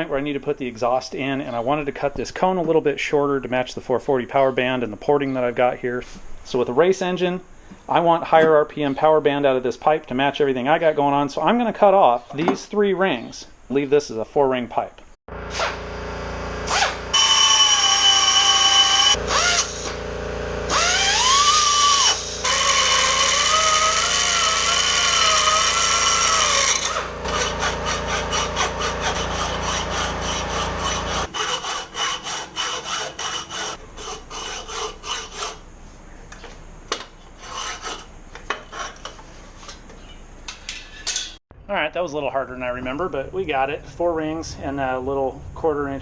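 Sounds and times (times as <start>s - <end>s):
cutoff tool whining: 15.3s - 35.6s
hacksaw strokes through metal: 22.4s - 35.6s, 37.3s - 39.8s.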